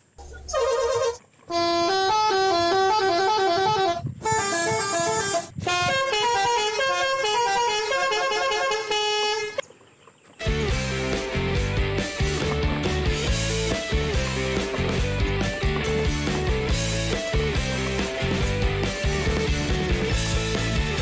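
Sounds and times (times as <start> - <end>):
melodic vehicle horn tune: 0.6 - 9.6, 10.4 - 21.0
rock music with guitar and bass: 10.4 - 21.0.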